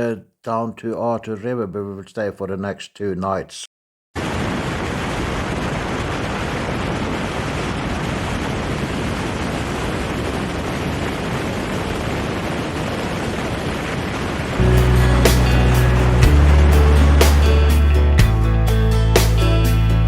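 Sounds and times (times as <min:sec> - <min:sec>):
music: 0:14.6 - 0:20.0.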